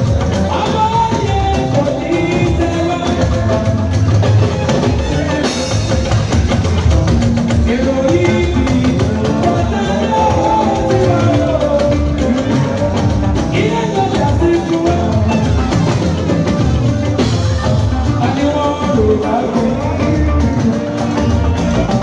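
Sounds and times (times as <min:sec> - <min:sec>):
choir singing with a band: 0:00.0 - 0:22.0
drum kit steady beat: 0:00.0 - 0:22.0.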